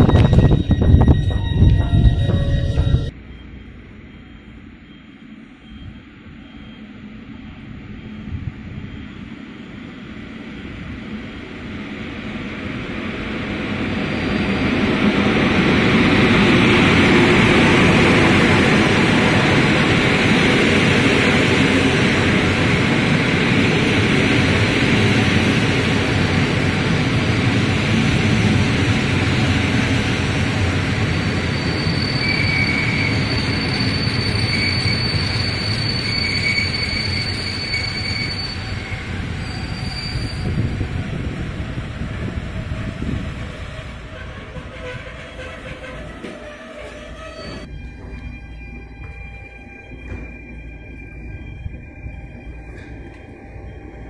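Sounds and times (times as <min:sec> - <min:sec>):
high thin squeal: 0:00.0 - 0:03.6, 0:31.0 - 0:40.9, 0:44.3 - 0:52.9
train wheels rushing on rails: 0:00.0 - 0:05.0, 0:05.6 - 0:54.0.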